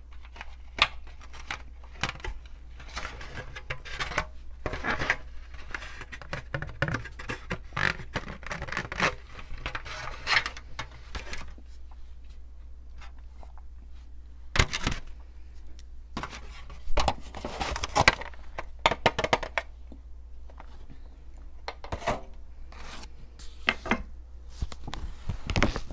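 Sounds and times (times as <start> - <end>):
rubbing and scratching: 0.1 - 11.6.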